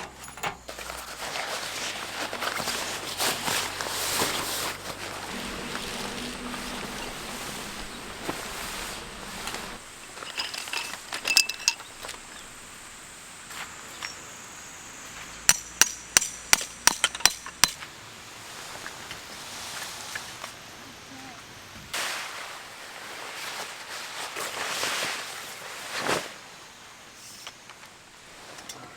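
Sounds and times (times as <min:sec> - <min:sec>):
metal clinking: 0:00.0 - 0:01.1, 0:04.8 - 0:12.2
low hum: 0:01.8 - 0:09.9.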